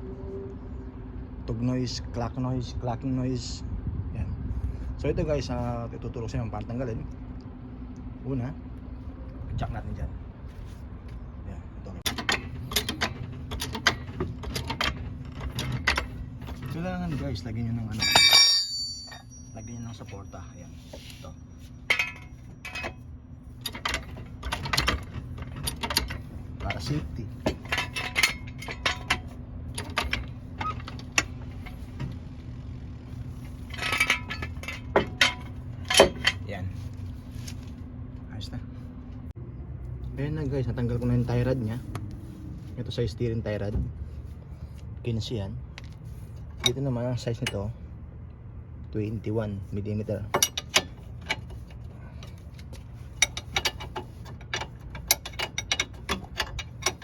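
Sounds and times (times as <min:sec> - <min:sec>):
steady low hum: 0:00.0 - 0:57.0
metal tools clinking: 0:12.0 - 0:32.1, 0:33.3 - 0:36.5, 0:50.1 - 0:57.0.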